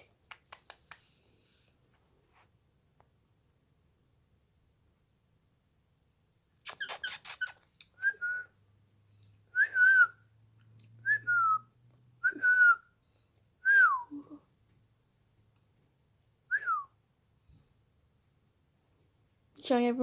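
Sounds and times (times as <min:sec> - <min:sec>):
quick clicks: 0:06.6 - 0:07.9.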